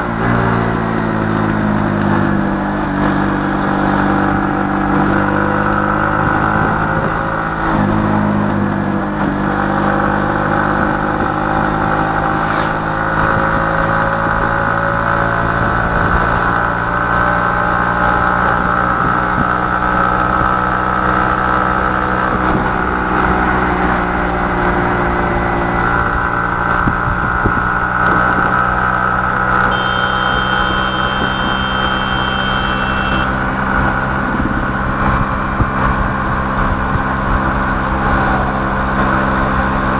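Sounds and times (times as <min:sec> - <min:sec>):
vehicle engine humming: 0:25.3 - 0:39.9.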